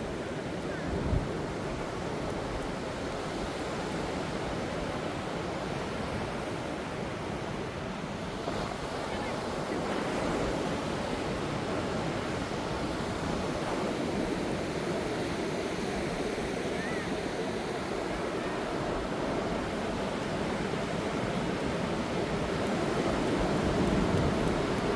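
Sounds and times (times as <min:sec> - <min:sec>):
ocean surf breaking on beach: 0:00.0 - 0:24.9
wind buffeting microphone: 0:08.3 - 0:24.9.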